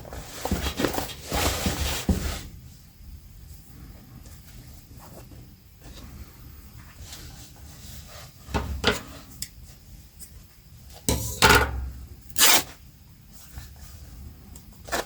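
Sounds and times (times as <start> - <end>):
fabric and objects rubbing and scraping: 0.0 - 10.1.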